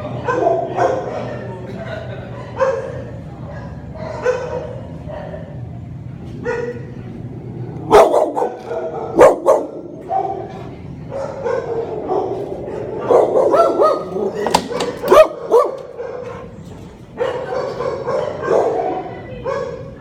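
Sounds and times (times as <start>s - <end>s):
dogs barking: 0.0s - 5.7s, 6.3s - 7.2s, 7.8s - 20.0s
dogs yipping and whining: 11.2s - 19.8s.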